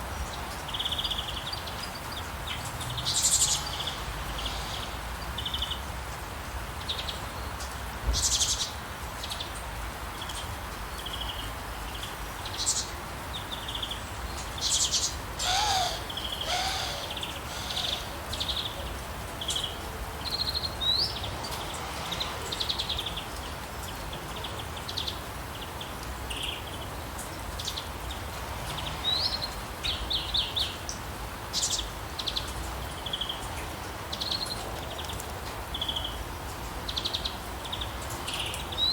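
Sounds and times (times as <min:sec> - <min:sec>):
rain hiss: 0:00.0 - 0:38.9
songbirds chirping and trilling: 0:10.2 - 0:38.9.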